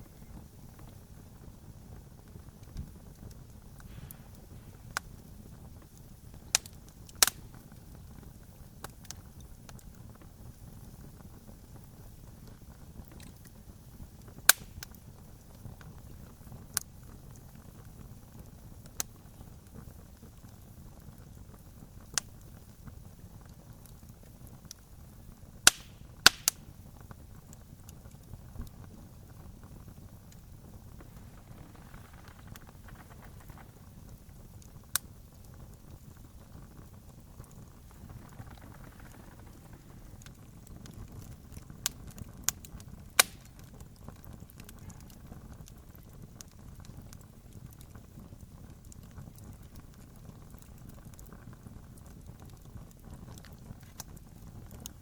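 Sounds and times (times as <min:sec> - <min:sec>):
campfire crackling: 0:00.0 - 0:55.0
loud fire snaps: 0:00.0 - 0:55.0
low steady rush: 0:03.8 - 0:06.4, 0:29.2 - 0:41.9.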